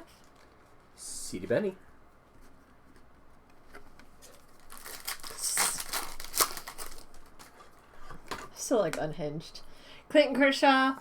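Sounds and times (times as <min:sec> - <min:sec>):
foil wrapper crinkling and tearing: 0:04.4 - 0:07.6.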